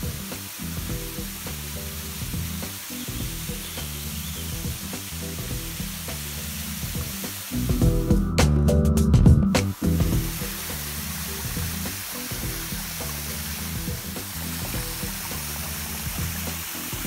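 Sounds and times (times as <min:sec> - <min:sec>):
small waterfall hissing: 0:00.0 - 0:08.2, 0:09.6 - 0:17.0
background music: 0:00.0 - 0:17.0.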